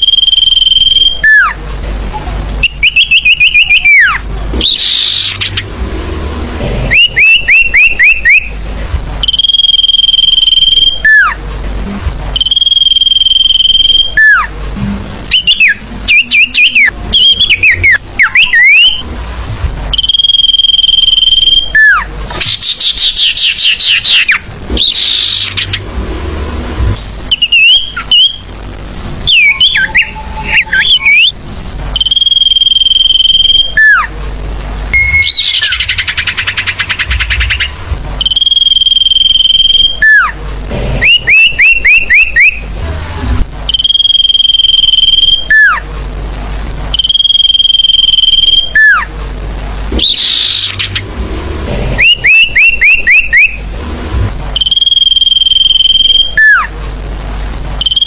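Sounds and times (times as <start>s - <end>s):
bird whistles chirps and trills: 0.0s - 1.6s, 2.6s - 5.7s, 6.9s - 8.6s, 9.2s - 11.4s, 12.4s - 14.5s, 15.3s - 19.0s, 19.9s - 25.8s, 27.0s - 28.5s, 29.2s - 31.4s, 32.0s - 34.1s, 35.0s - 40.4s, 41.0s - 42.6s, 43.7s - 45.8s, 46.9s - 49.1s, 50.0s - 51.0s, 52.0s - 53.6s, 54.6s - 56.7s, 57.8s - 58.0s.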